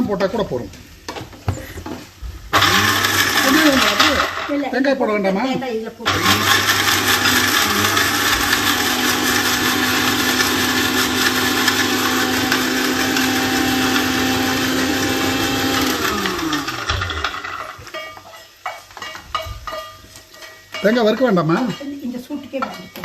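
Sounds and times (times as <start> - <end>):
mixer grinder motor running: 2.5 - 4.5, 6.0 - 17.8.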